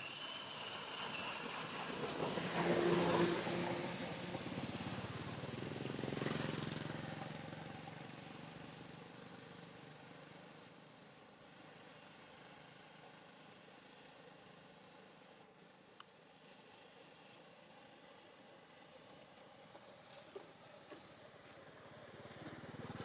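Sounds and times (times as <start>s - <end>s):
motorbike passing by: 0.1s - 10.7s, 20.8s - 23.0s.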